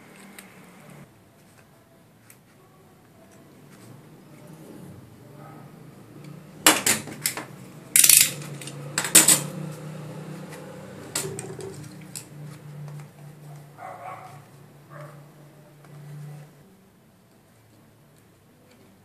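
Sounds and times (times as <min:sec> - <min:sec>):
hard objects clattering and clinking: 0:06.6 - 0:09.5.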